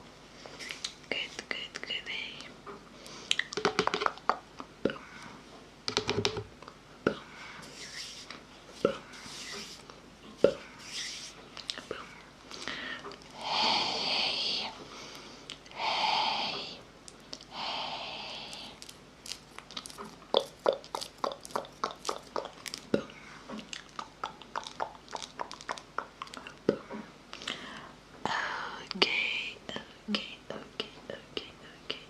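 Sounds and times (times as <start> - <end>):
wet mouth clicks and tongue pops: 3.3 - 5.0, 19.7 - 26.8
breathy hisses: 10.7 - 16.8, 17.5 - 18.8.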